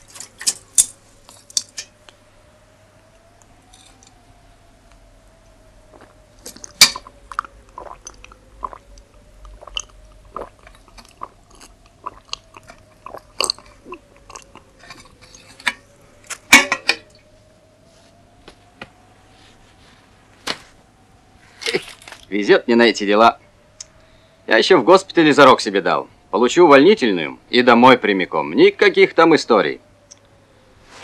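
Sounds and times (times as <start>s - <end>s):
faint wavering tone: 0.0s - 22.3s.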